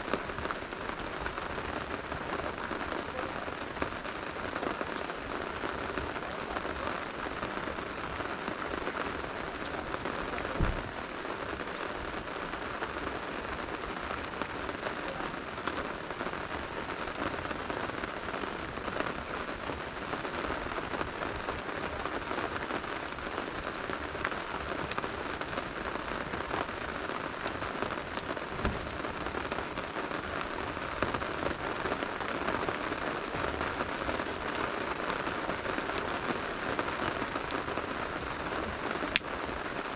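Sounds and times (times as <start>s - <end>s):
campfire crackles: 0.0s - 39.9s
steady rain falling: 0.0s - 39.9s
low thump: 10.6s - 10.9s, 28.6s - 28.9s.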